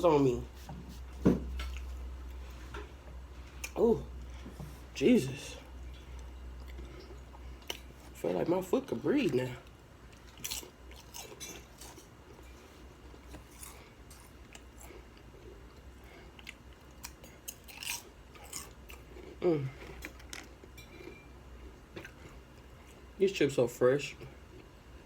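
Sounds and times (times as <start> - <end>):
person crunching potato chips: 10.1 - 12.4, 13.1 - 15.2, 16.4 - 20.6.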